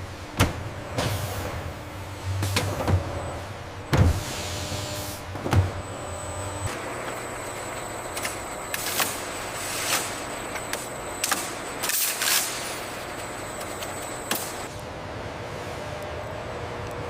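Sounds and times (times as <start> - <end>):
factory machinery hissing and whining: 0.0 - 16.7.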